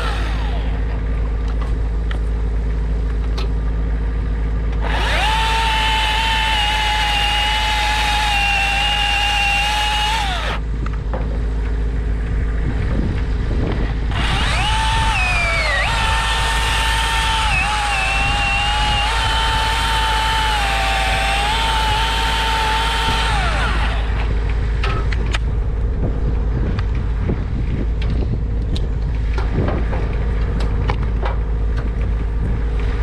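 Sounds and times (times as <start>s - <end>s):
chainsaw cutting wood: 0.0s - 1.0s, 4.8s - 10.6s, 14.1s - 24.5s.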